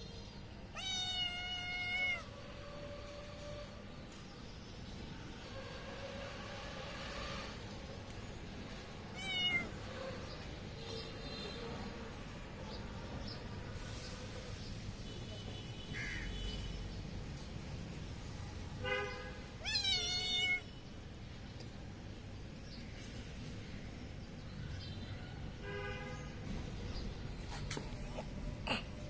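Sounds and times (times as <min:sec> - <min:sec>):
cats meowing: 0:00.7 - 0:02.4, 0:09.0 - 0:10.0, 0:19.6 - 0:20.7.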